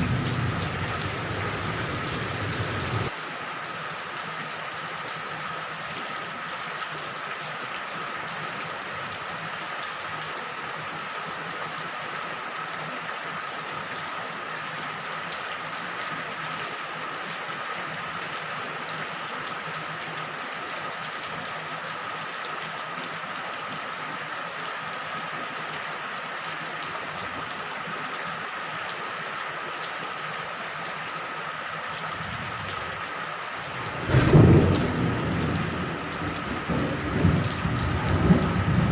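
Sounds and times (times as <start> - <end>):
thunder rumble: 0.0 - 3.1, 33.7 - 38.9
steady rain hissing: 0.0 - 38.9.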